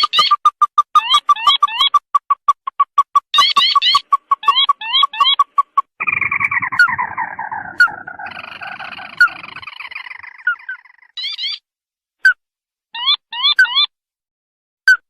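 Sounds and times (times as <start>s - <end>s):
bird trill call: 3.3s - 11.6s
sharp short bird notes: 6.0s - 11.6s.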